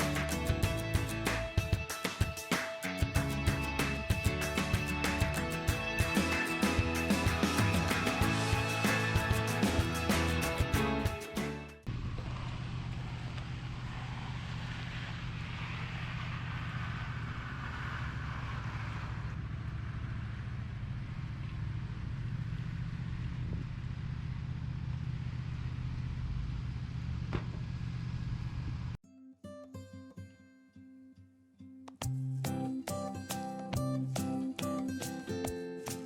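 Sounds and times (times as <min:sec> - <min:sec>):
engine running steadily: 0:11.9 - 0:29.0.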